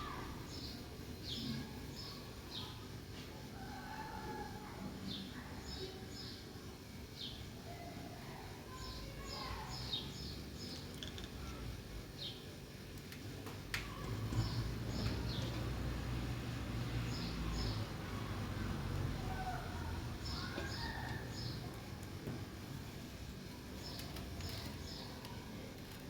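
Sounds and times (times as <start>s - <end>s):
sparrows chirping: 0.0s - 2.9s, 5.1s - 7.5s, 8.3s - 11.3s, 12.1s - 12.6s, 13.9s - 25.6s.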